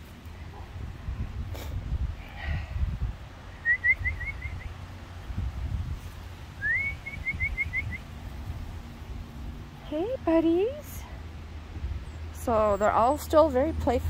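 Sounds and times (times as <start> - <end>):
low rumbling microphone noise: 0.0 - 13.1
songbird singing: 3.5 - 4.9, 6.6 - 8.3, 9.1 - 14.0.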